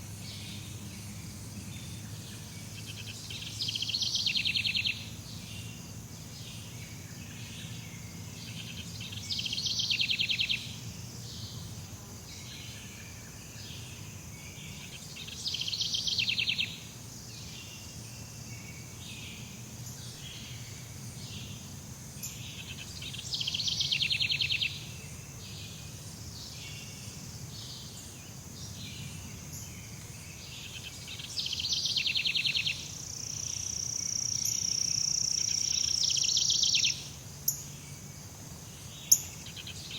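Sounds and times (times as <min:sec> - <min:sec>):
high drone of insects: 0:00.0 - 0:39.9.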